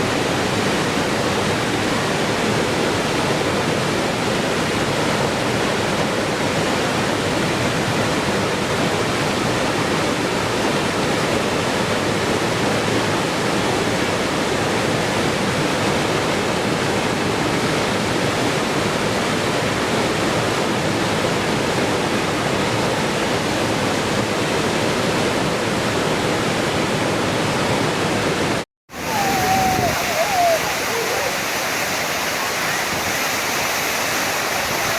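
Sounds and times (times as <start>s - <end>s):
waterfall rushing: 28.9s - 34.9s.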